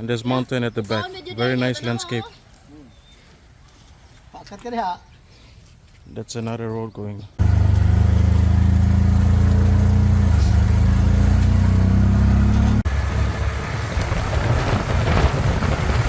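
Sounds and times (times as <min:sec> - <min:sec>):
motorcycle engine running: 0:07.4 - 0:16.0.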